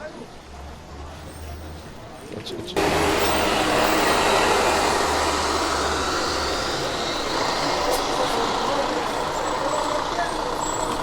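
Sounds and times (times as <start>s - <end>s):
engine running: 2.8s - 11.0s.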